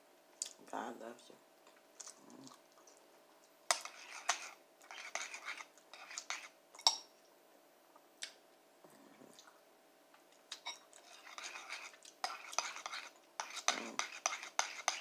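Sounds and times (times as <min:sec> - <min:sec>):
chewing and lip smacks: 0:01.6 - 0:03.1, 0:09.3 - 0:09.6.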